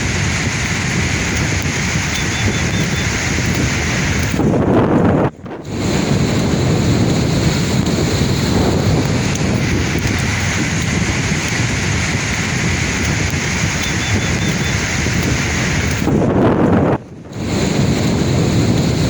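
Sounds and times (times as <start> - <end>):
sea waves surging: 0.0 - 19.0
wind buffeting microphone: 0.0 - 19.0.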